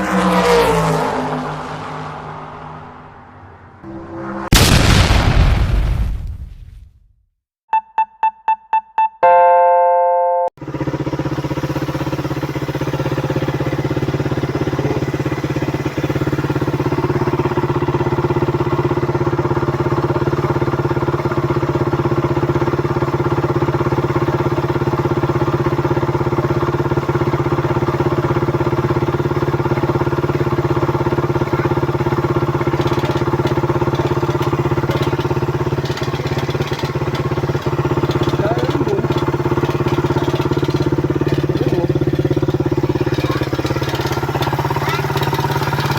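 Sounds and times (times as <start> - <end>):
motorcycle engine idling: 10.6 - 45.9.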